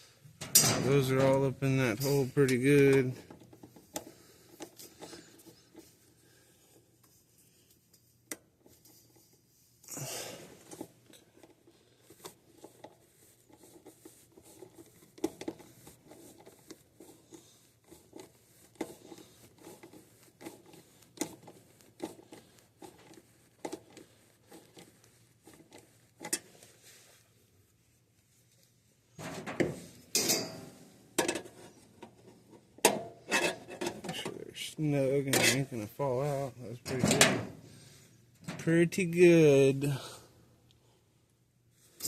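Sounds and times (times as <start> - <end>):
wires clicking and rustling: 10.6 - 27.3
metal scrape: 29.2 - 31.8, 32.9 - 34.3.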